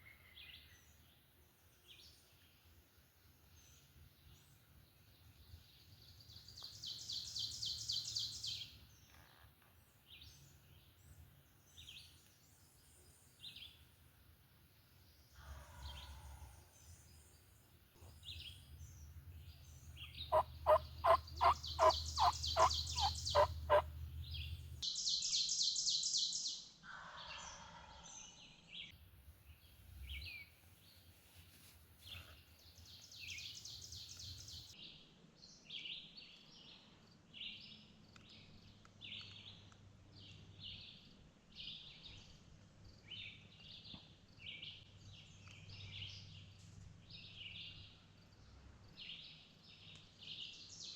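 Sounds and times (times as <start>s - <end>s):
songbirds chirping: 0.0s - 50.9s
turkey yelping: 20.3s - 23.9s.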